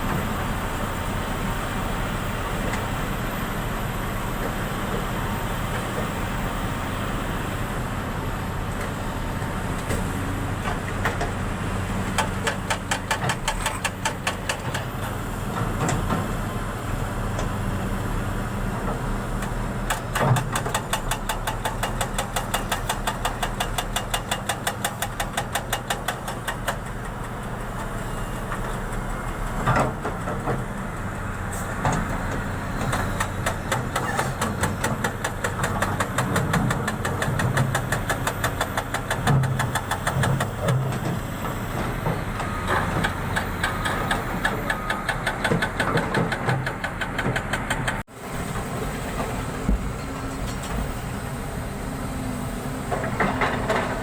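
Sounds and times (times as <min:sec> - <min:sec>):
engine running: 0:26.3 - 0:54.0.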